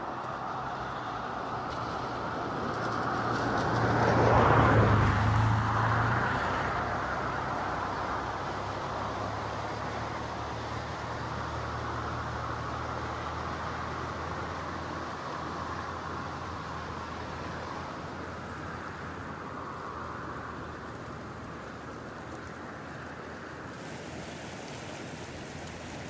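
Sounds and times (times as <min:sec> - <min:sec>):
rushing roar of a flooded river: 0:00.0 - 0:26.0.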